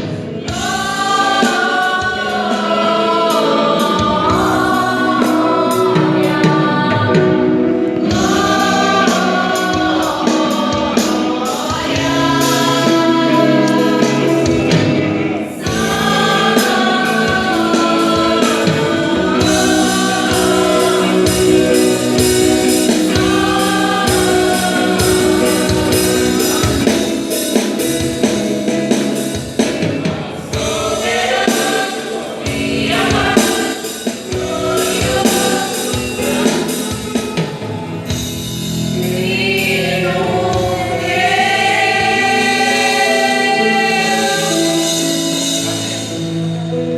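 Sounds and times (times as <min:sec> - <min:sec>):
instrumental backing with beat: 0:00.0 - 0:46.9
vocal group singing in harmony: 0:00.0 - 0:46.9.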